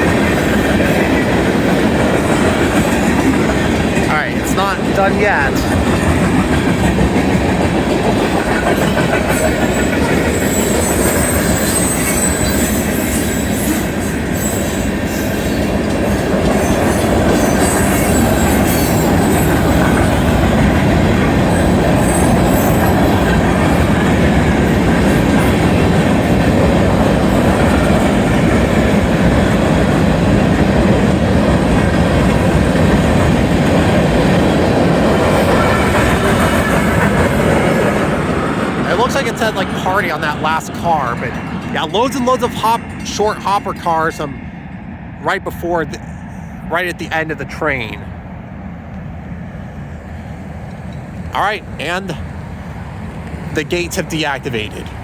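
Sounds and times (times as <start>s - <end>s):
train wheels clattering over rail joints: 0.0s - 5.0s, 5.6s - 43.1s
high wheel squeal: 8.8s - 20.7s, 21.4s - 25.9s.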